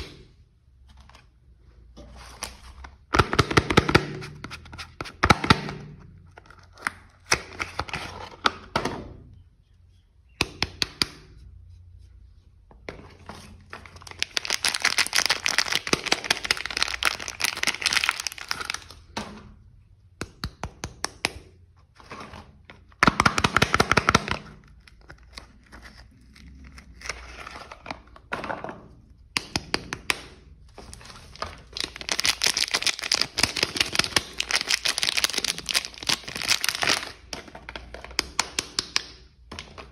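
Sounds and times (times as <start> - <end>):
wrappers crinkling: 13.8 - 19.0, 30.8 - 37.2.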